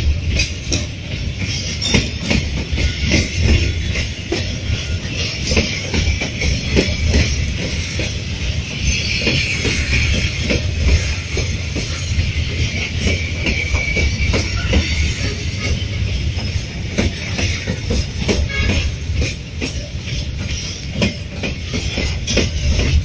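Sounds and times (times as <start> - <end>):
low train rumble: 0.0 - 23.0
train wheels clacking: 0.0 - 23.0
faint wheel squeal: 6.8 - 17.7.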